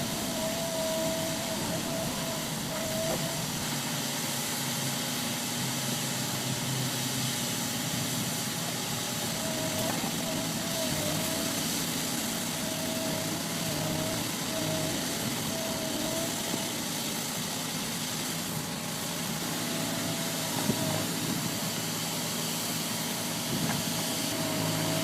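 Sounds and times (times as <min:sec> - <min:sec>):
thin wavering tone: 0:00.0 - 0:03.8
heavy machine engine running: 0:00.0 - 0:25.0
hiss: 0:00.0 - 0:25.0.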